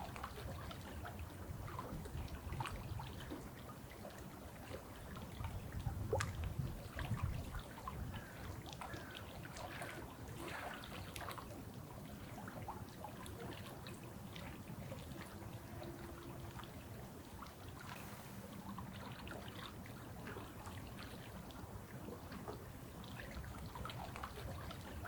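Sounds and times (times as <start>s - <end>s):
low steady rumble: 14.0s - 20.8s.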